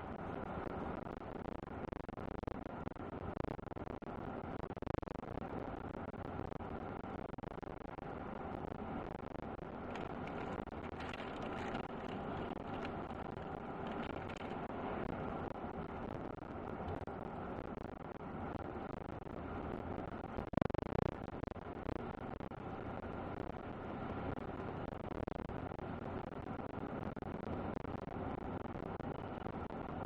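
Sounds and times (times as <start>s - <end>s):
truck driving road noise: 9.8s - 15.4s.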